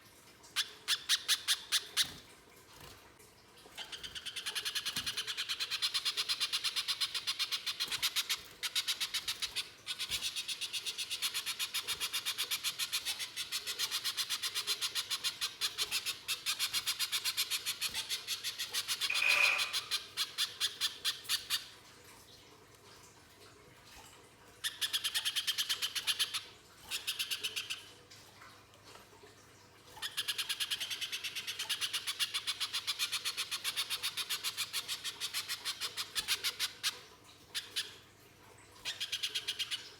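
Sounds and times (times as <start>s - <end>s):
bird calling harsh rapid notes: 19.1s - 20.0s.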